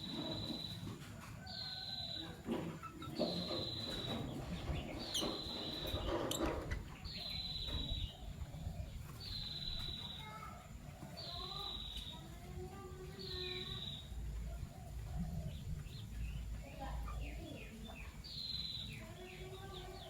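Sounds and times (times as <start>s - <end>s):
lovebirds calling: 0.0s - 20.0s
sharp bird chirps: 9.2s - 10.4s.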